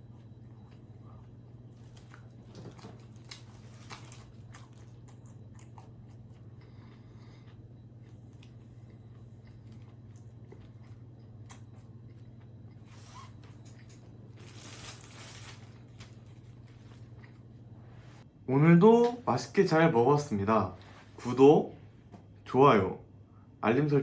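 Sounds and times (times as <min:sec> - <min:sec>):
quiet chewing: 0:00.0 - 0:14.4, 0:15.9 - 0:17.8
steady low hum: 0:00.0 - 0:24.0.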